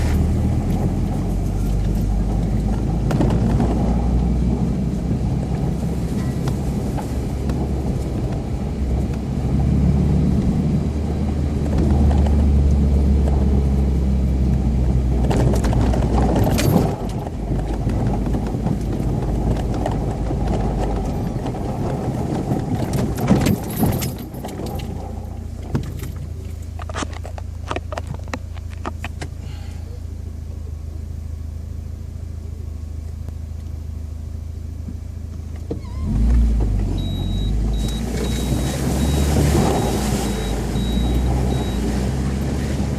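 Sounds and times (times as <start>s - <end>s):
car engine running hard: 0.0s - 42.9s
clattering knocks and rattles: 15.2s - 29.2s.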